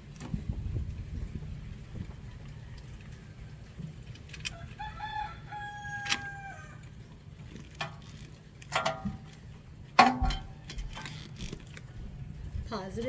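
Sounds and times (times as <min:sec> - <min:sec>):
clicks and knocks of engine work: 0:00.0 - 0:04.8, 0:06.0 - 0:12.2
rooster crowing: 0:04.5 - 0:07.0.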